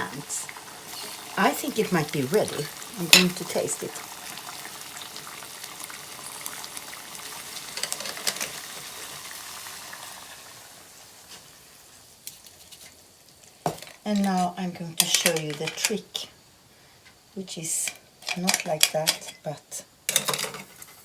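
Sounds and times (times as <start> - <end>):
sauce sizzling and bubbling in a pan: 0.0 - 15.5.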